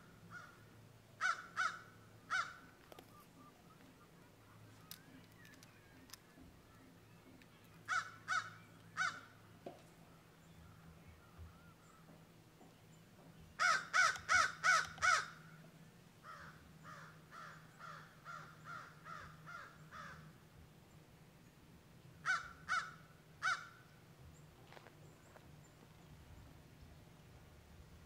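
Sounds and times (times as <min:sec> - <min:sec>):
bird calling: 0:01.2 - 0:12.2, 0:13.6 - 0:15.6.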